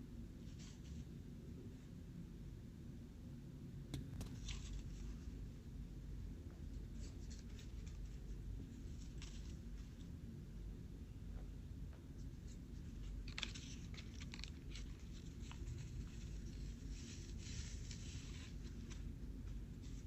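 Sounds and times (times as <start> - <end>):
paper rustling and crackling: 4.2 - 5.2, 6.7 - 10.1, 12.4 - 20.0.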